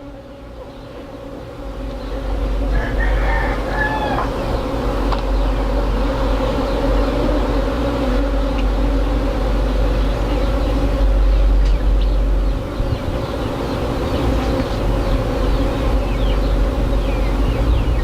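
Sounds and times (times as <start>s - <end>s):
bee swarm buzzing: 0.0s - 18.0s
rooster crowing: 2.6s - 4.6s
wind rumble on microphone: 11.0s - 13.4s, 14.1s - 18.0s.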